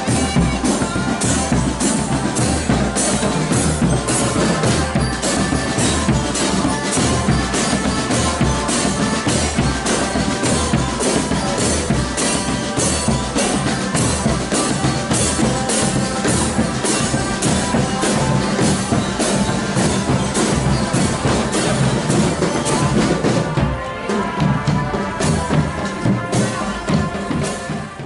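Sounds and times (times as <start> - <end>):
held melodic notes: 0.0 - 28.0
snare and bass drums: 0.0 - 28.0.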